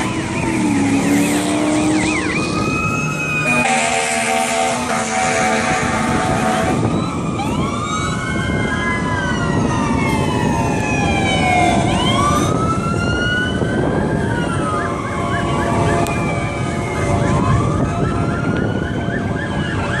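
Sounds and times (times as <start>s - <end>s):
emergency sirens wailing: 0.0s - 20.0s
horn blaring: 0.6s - 7.0s.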